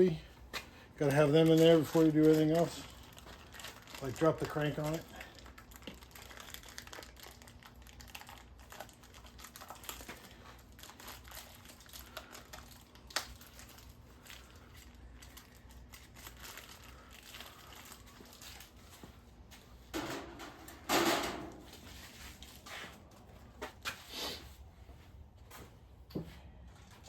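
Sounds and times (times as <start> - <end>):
packaging crinkling: 1.0 - 19.0.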